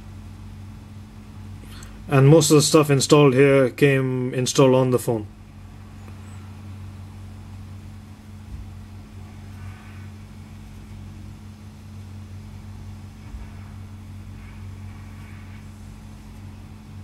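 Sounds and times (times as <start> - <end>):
low hum: 0.0 - 17.0
faint rumble: 5.2 - 17.0.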